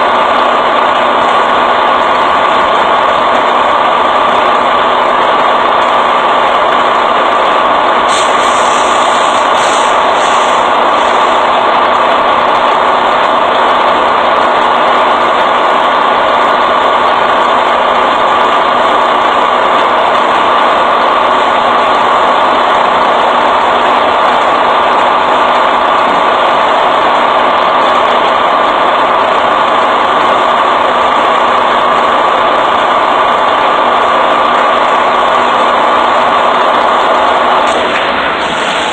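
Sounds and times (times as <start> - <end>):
brief hiss: 8.1 - 10.7.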